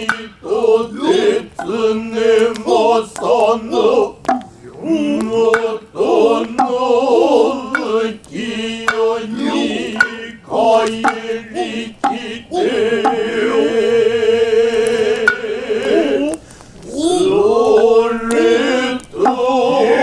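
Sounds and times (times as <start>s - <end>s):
hand drum strokes: 4.2s - 4.5s, 6.4s - 6.9s, 9.8s - 10.3s, 10.9s - 12.4s, 13.0s - 13.4s, 15.2s - 16.1s.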